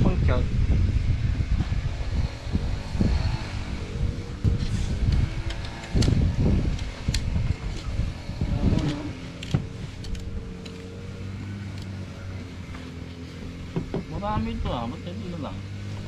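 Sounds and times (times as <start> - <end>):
motor humming: 0.6 - 16.0
heavy rumbling and knocks: 4.4 - 10.3, 13.4 - 14.8.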